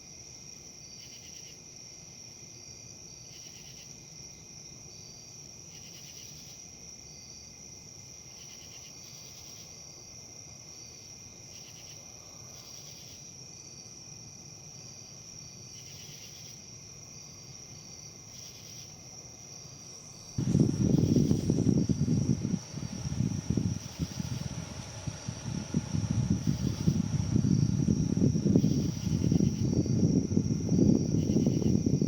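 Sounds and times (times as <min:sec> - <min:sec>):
crickets chorus: 0:00.0 - 0:32.0
loud rush of low noise: 0:19.8 - 0:32.0
faint low rustle: 0:19.9 - 0:32.0.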